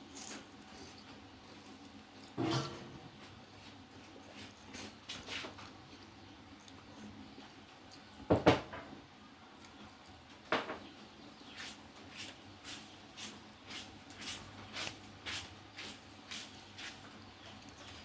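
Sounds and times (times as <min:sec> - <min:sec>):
person chewing: 0:04.2 - 0:08.1.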